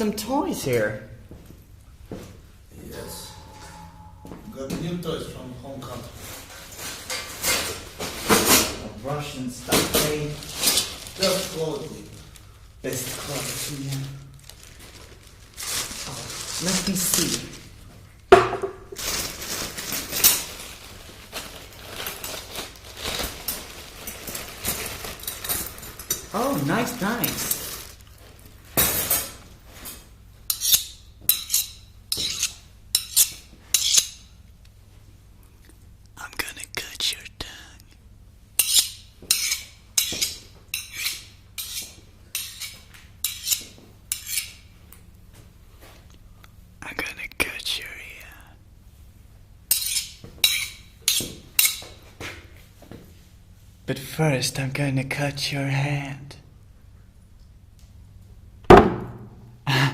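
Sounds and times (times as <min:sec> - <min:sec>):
rustling and crackling handling: 0:09.6 - 0:18.0, 0:18.9 - 0:28.8
sharp knocks: 0:18.3 - 0:18.9, 0:58.7 - 0:59.4
knife blade scraping: 0:30.5 - 0:34.3, 0:38.6 - 0:44.6, 0:49.7 - 0:51.8.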